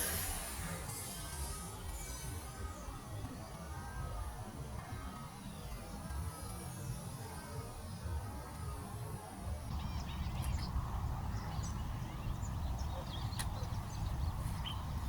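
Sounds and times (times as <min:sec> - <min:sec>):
wind buffeting microphone: 0:09.1 - 0:15.0
birds chirping: 0:09.7 - 0:15.0.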